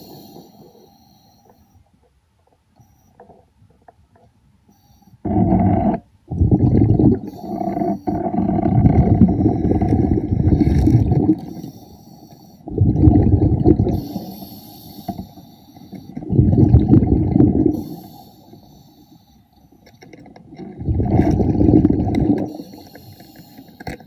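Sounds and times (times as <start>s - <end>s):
diver exhaling bubbles underwater: 5.2s - 11.5s, 12.7s - 14.2s, 16.2s - 18.0s, 20.6s - 22.6s.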